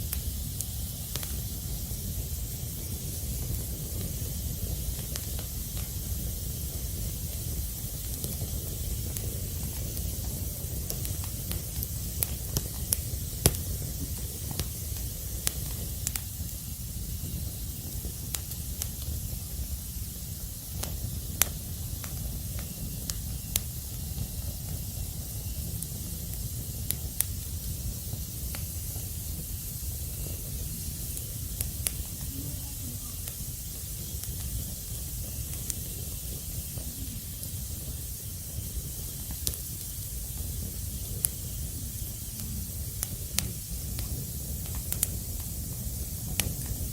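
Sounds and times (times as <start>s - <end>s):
wood fire crackling: 0.0s - 46.9s.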